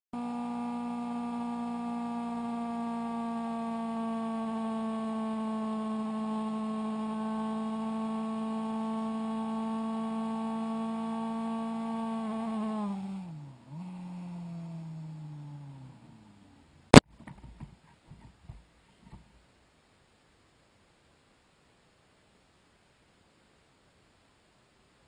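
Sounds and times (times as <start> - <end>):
motorcycle engine at high revs: 0.1 - 17.7.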